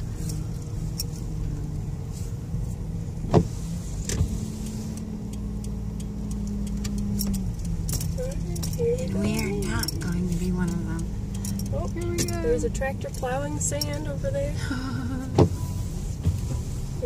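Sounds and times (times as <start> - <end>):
car engine and road hum: 0.0 - 17.0
faint ticks: 4.0 - 14.1.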